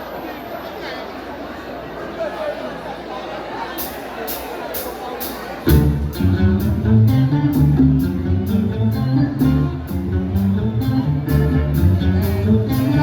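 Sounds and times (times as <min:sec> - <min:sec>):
live band playing: 0:03.8 - 0:13.0.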